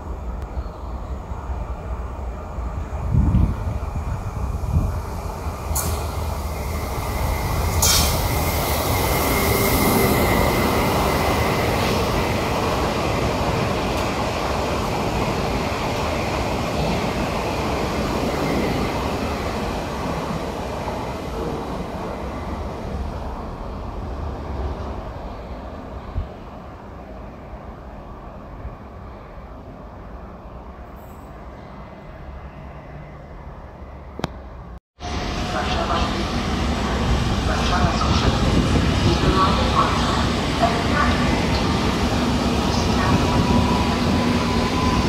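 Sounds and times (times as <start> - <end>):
train wheels rumbling on rail: 1.7 - 26.7, 34.2 - 45.0.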